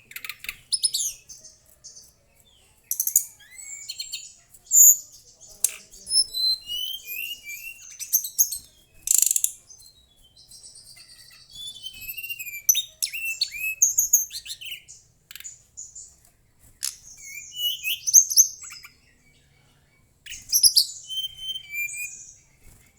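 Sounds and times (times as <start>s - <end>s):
bird whistling and trilling: 0.1s - 1.4s, 2.9s - 5.0s, 6.1s - 15.0s, 16.8s - 19.0s, 20.3s - 22.4s.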